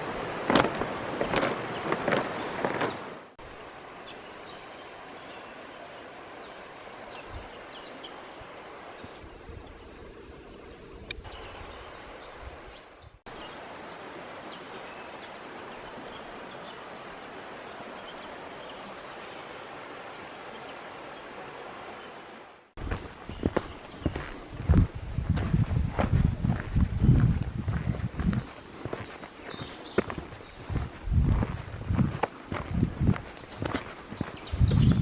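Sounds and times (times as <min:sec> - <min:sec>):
hiss of wind or running water: 0:00.0 - 0:35.0
soft low thumps: 0:22.8 - 0:28.5, 0:30.0 - 0:35.0.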